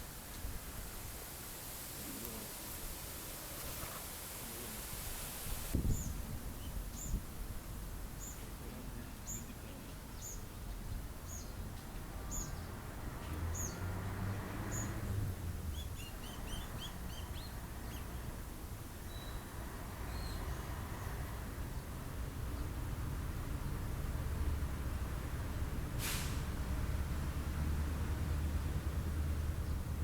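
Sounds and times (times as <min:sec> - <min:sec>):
wind rumble on microphone: 0:05.4 - 0:08.1
small birds chirping: 0:05.8 - 0:07.3, 0:08.2 - 0:12.8, 0:15.7 - 0:18.4.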